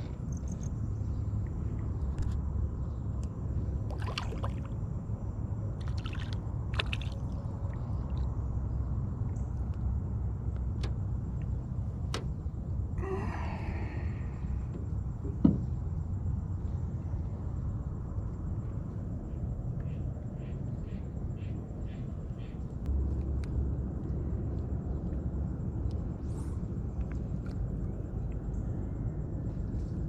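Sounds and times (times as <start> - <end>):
low rumble: 0.0 - 30.0
water clicks and splashes: 3.2 - 4.8, 5.8 - 8.4
water sloshing rush: 3.6 - 4.9, 5.7 - 8.3.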